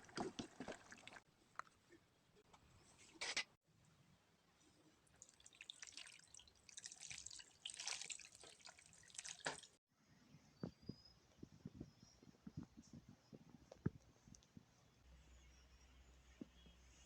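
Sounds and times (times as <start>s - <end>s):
liquid dripping and crackling: 0.0s - 1.8s, 5.0s - 9.8s.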